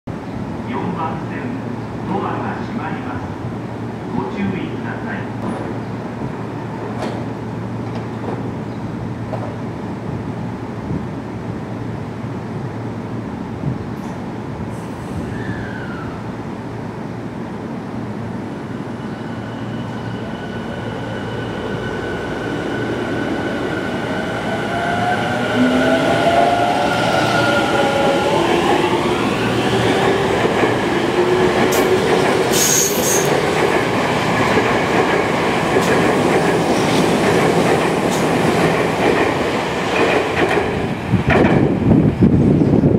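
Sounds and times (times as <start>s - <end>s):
train running rumble: 27.4s - 42.9s.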